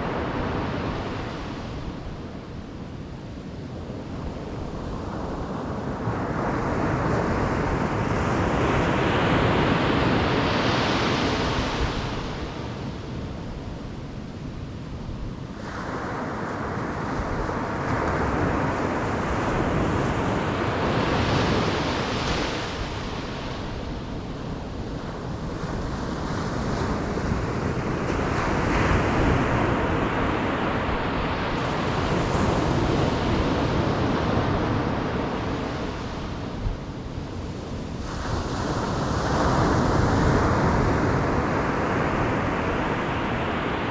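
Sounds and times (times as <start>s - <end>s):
waves breaking on beach: 15.4s - 43.9s.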